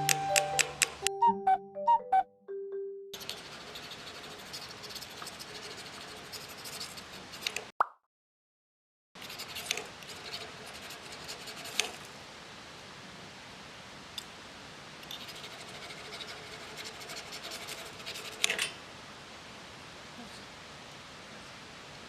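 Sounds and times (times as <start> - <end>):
scratchy scraping and rubbing: 3.2 - 7.6, 9.2 - 12.0, 15.1 - 18.7.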